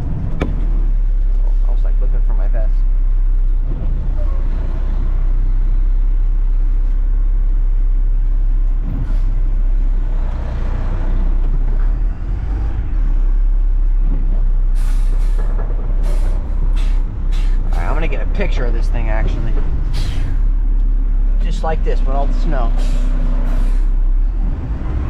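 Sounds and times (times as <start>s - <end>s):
garbage truck diesel engine rumbling: 0.0s - 25.0s.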